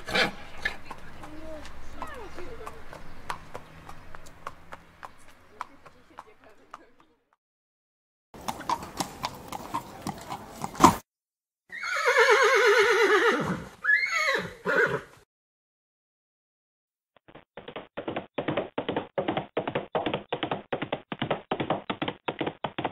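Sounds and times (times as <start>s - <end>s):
horse hooves clopping: 0.0s - 7.2s, 8.4s - 11.0s, 17.3s - 22.9s
horse whinnying: 11.7s - 15.1s.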